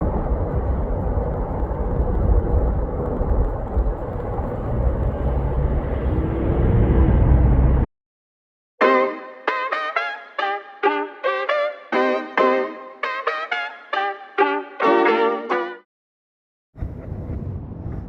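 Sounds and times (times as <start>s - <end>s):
low outdoor rumble: 0.0s - 7.9s.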